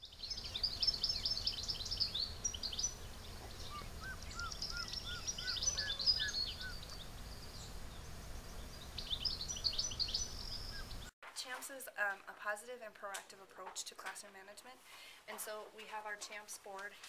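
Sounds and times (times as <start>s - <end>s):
small birds chirping and twittering: 0.0s - 11.1s
low background noise: 0.2s - 17.0s
bird whistled lower notes: 3.7s - 6.8s.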